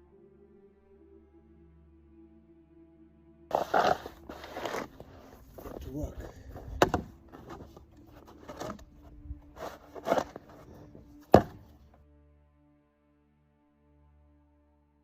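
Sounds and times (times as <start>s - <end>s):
soft sustained music: 0.0s - 15.0s
knocks and scrapes: 3.5s - 12.0s.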